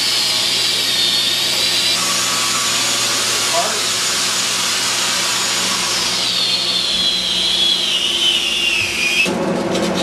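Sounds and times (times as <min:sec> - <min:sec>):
cleaning machine hiss and hum: 0:00.0 - 0:09.4
machine whine falling in pitch: 0:05.4 - 0:09.5.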